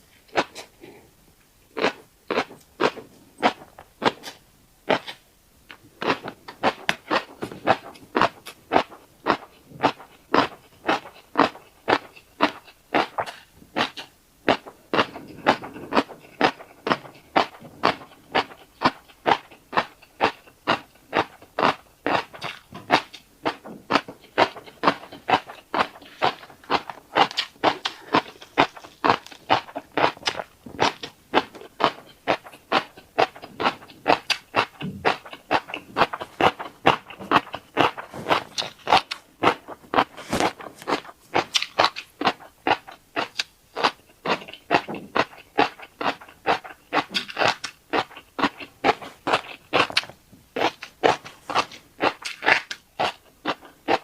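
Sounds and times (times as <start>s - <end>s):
wet chewing clicks and pops: 1.7s - 54.0s.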